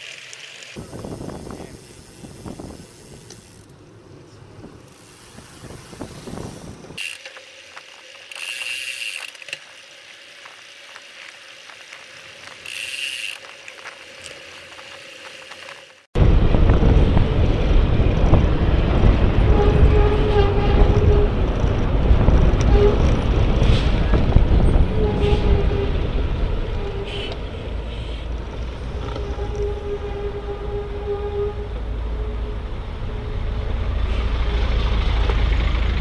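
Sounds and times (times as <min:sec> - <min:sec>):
bicycle freewheel ticking: 0:00.0 - 0:03.7, 0:04.9 - 0:16.1
low wind: 0:00.0 - 0:36.0
road rumble: 0:00.0 - 0:36.0
loud rush of noise: 0:16.2 - 0:20.3.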